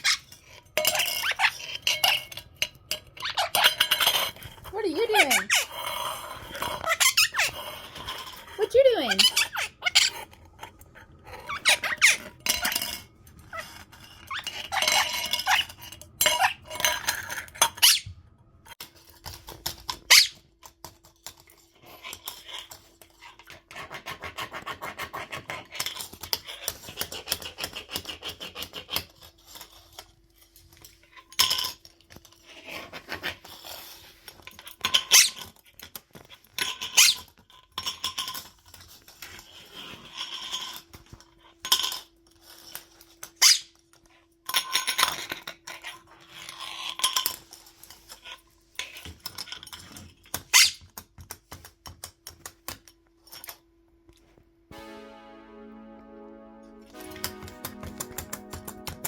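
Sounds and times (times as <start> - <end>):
parrot chirping and squeaking: 0.0 - 2.3, 3.2 - 4.0, 5.1 - 5.9, 6.7 - 8.2, 9.0 - 10.2, 11.5 - 12.3, 14.2 - 16.7, 17.6 - 18.2, 20.1 - 20.4, 37.0 - 37.3, 43.4 - 43.7, 50.5 - 50.8.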